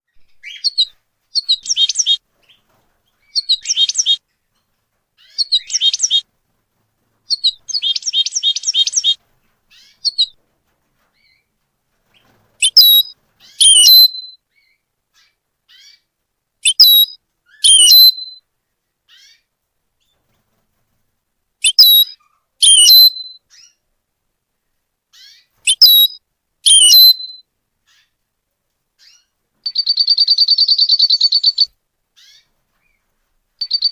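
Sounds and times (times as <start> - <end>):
songbird chirping: 0.0 - 6.3, 7.2 - 10.4, 11.0 - 20.3, 21.6 - 23.9, 24.7 - 28.2, 29.0 - 33.9.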